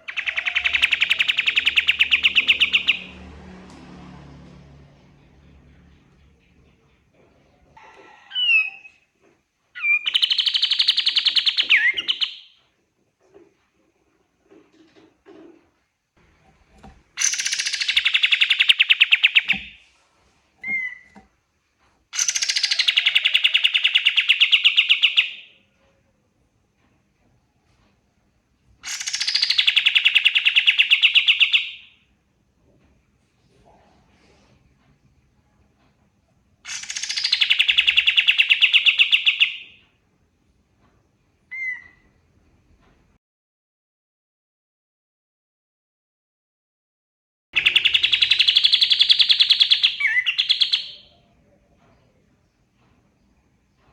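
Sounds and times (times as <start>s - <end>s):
bird chirp: 0.0s - 3.2s, 9.8s - 12.6s, 17.2s - 19.8s, 20.6s - 21.2s, 22.1s - 25.6s, 28.8s - 32.0s, 36.7s - 39.8s, 41.5s - 42.1s, 47.6s - 52.2s
bird singing fast trill: 0.1s - 3.1s, 17.2s - 19.7s, 28.9s - 31.9s, 47.6s - 51.1s
songbird trilling: 0.1s - 3.1s, 9.8s - 12.5s, 17.2s - 19.8s, 22.2s - 25.4s, 36.7s - 39.7s, 47.6s - 51.1s.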